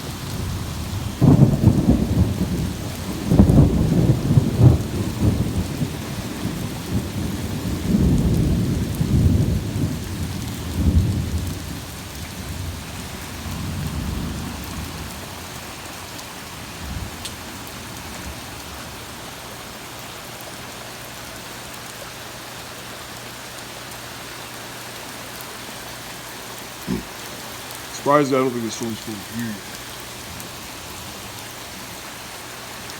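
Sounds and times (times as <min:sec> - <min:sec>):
steady rain: 0:00.0 - 0:32.9
thunder rumbling: 0:00.4 - 0:10.0.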